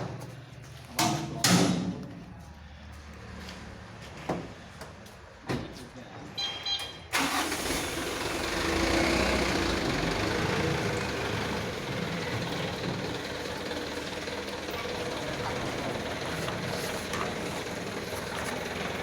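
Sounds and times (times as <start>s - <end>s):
high beeps: 6.4s - 7.0s
truck diesel engine running: 7.1s - 19.0s.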